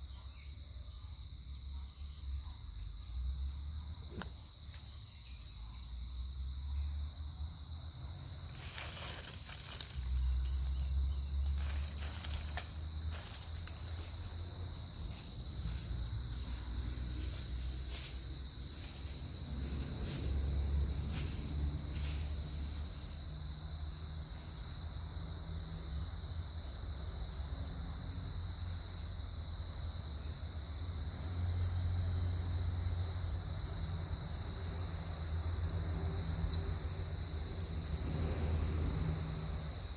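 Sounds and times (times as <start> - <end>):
high-pitched insect chorus: 0.0 - 39.9
faint clicks and rustles: 8.3 - 20.3.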